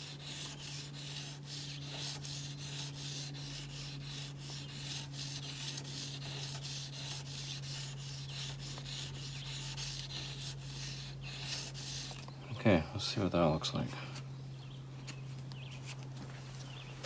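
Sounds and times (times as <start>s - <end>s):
blade scraping on sandpaper: 0.0s - 12.3s.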